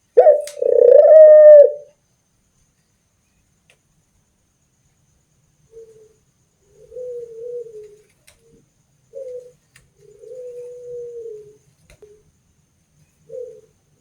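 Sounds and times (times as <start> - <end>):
dove cooing: 0.1 - 1.9, 6.8 - 8.1, 9.1 - 12.2, 13.3 - 13.8
faint clicks: 7.8 - 8.5.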